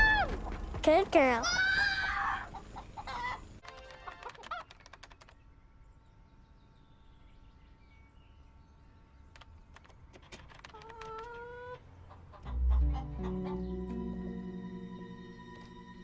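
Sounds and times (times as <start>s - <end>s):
chicken clucking: 10.7s - 14.2s.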